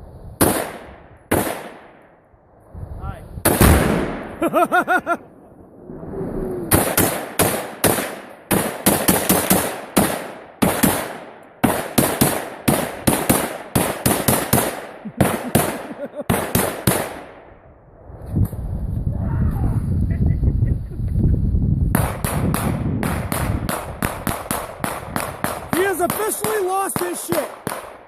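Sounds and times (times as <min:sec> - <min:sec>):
gunshots: 0:00.4 - 0:02.0, 0:03.4 - 0:04.5, 0:06.7 - 0:17.5, 0:22.0 - 0:28.0.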